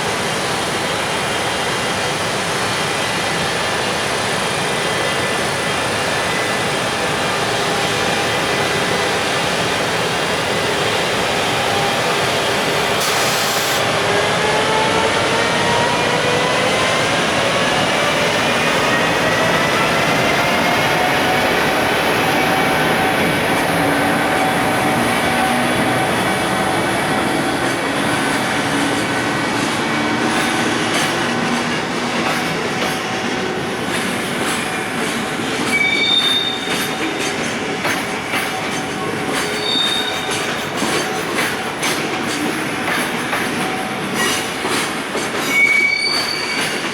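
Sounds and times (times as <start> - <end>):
freight train rolling past: 0.0 - 46.9
locomotive whining tone: 11.5 - 36.8
wheel squeals: 35.7 - 36.9, 39.5 - 40.6, 45.4 - 46.9.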